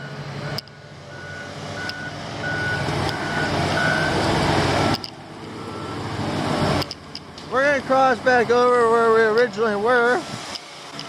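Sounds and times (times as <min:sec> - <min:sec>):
vehicle reversing alarm beeping: 0:00.0 - 0:06.8
diesel engine: 0:00.0 - 0:11.0.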